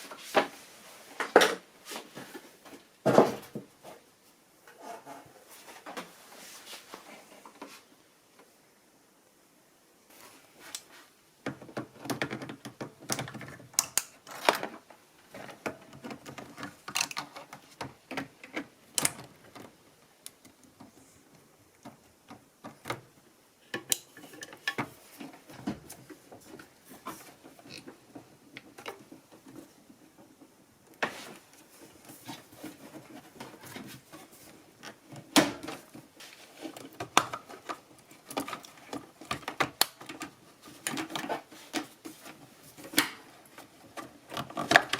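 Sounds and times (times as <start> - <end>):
clicks and rattles of hand work: 10.6 - 44.9.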